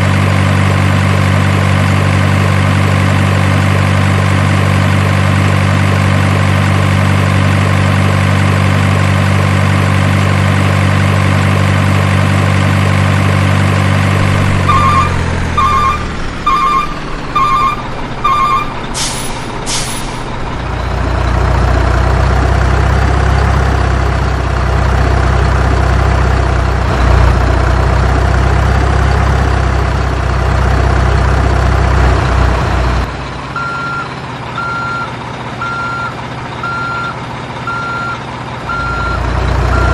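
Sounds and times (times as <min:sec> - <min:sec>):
diesel engine idling: 0:00.0 - 0:39.9
high-pitched reversing beep: 0:14.7 - 0:18.8, 0:37.7 - 0:39.9
reversing alarm beeps: 0:14.7 - 0:18.8, 0:33.6 - 0:39.9
air brake hisses: 0:19.0 - 0:20.3.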